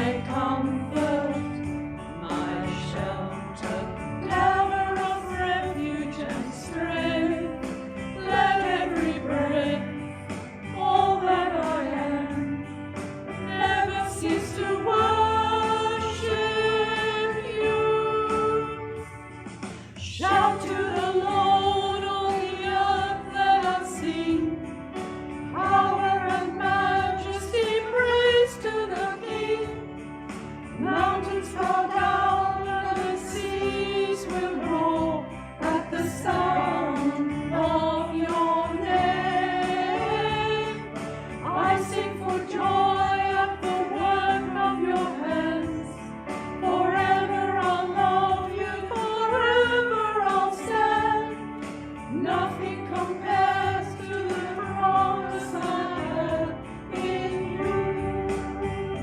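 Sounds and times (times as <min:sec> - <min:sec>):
small group singing a hymn: 0:00.0 - 0:19.0, 0:20.0 - 0:30.0, 0:30.7 - 0:59.0
instrumental accompaniment: 0:00.0 - 0:59.0.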